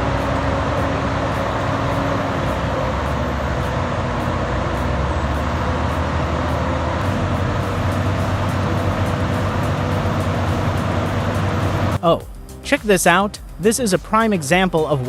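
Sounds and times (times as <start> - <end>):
heavy diesel machinery running: 0.0 - 12.0.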